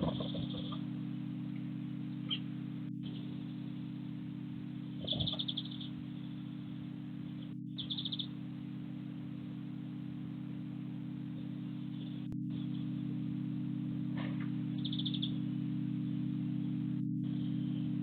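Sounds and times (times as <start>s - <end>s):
steady low hum: 0.0s - 18.0s
small bird trilling chirps: 2.2s - 2.5s, 5.0s - 6.0s, 7.8s - 8.4s, 14.8s - 15.4s.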